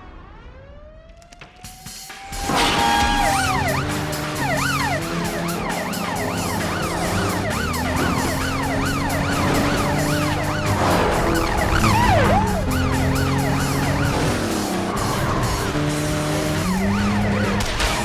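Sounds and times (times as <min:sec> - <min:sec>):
police sirens wailing: 0:00.0 - 0:18.0.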